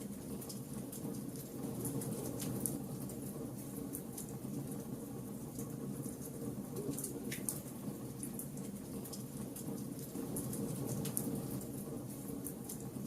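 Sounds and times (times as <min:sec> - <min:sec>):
wood fire crackling: 0:05.5 - 0:13.0.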